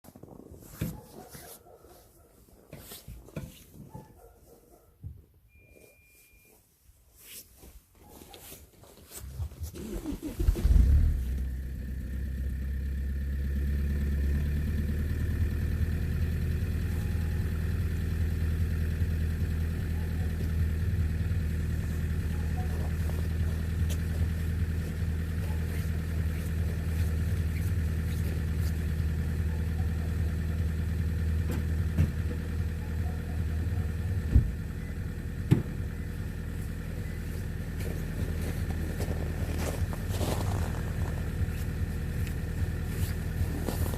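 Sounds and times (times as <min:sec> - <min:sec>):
diesel engine cranking: 0:09.5 - 0:43.9
diesel engine idling: 0:09.8 - 0:43.9.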